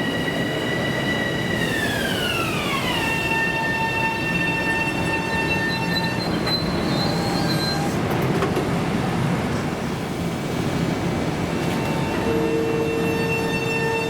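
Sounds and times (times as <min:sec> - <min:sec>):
high squeal: 0:00.0 - 0:08.0, 0:11.8 - 0:14.0
train wheels rumbling on rails: 0:00.0 - 0:14.0.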